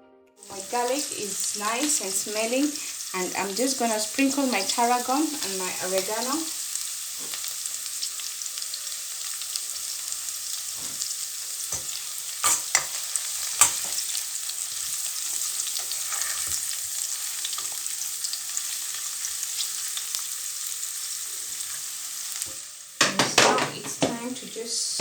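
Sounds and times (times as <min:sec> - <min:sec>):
onions sizzling in hot oil: 0:00.4 - 0:25.0
spoon knocking against a pan: 0:23.0 - 0:24.2.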